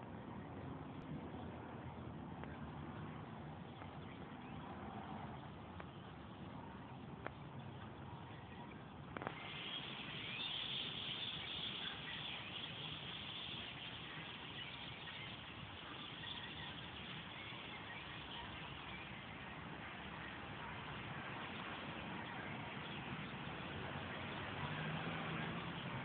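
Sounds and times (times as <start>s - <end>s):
flock of blackbirds chattering: 9.2s - 24.4s.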